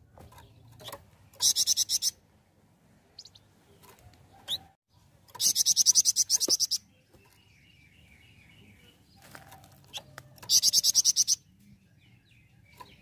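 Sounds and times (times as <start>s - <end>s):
songbird trilling: 0.4s - 2.2s, 5.3s - 9.2s, 9.9s - 13.0s.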